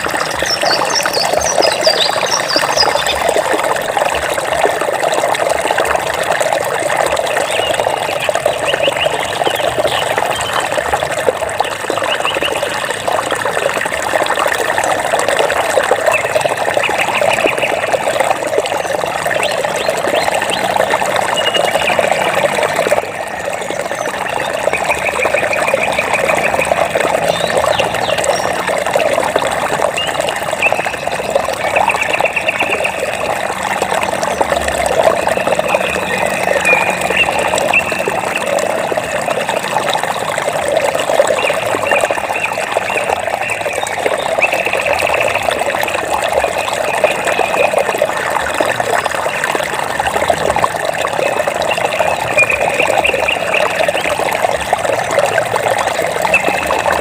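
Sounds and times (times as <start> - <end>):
running water flowing: 0.0 - 57.0.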